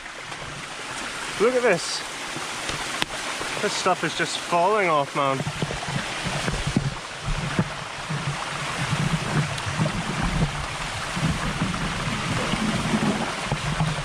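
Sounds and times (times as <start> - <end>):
waterfall rushing water: 0.0 - 14.0
knocks and crackles: 5.3 - 14.0.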